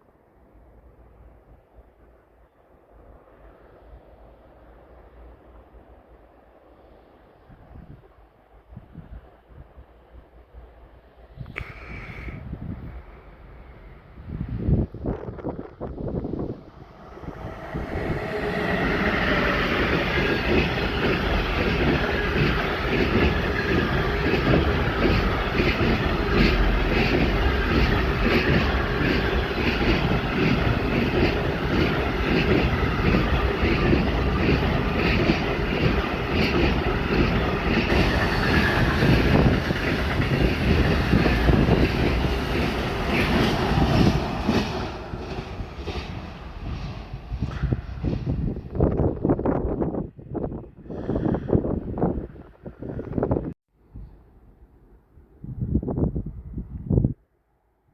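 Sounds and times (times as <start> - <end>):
freight train wheels clattering: 17.0 - 48.7.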